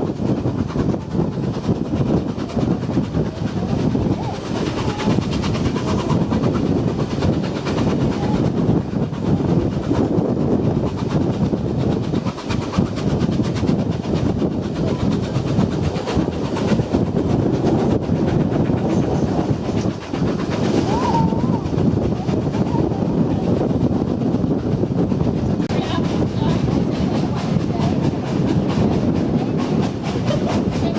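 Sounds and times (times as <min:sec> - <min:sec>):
train rumbling on track: 0:00.0 - 0:30.9.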